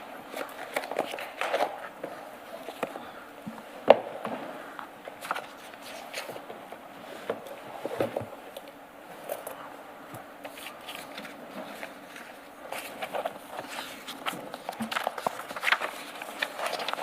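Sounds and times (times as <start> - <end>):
paper pages rustling: 0.2 - 3.2, 5.2 - 8.3, 10.4 - 17.0.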